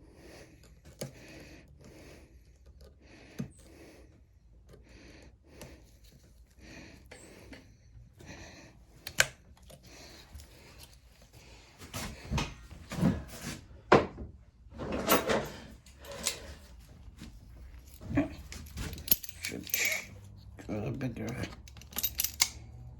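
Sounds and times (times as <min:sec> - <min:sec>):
hands handling tools and parts: 0:08.9 - 0:13.6, 0:14.8 - 0:22.9.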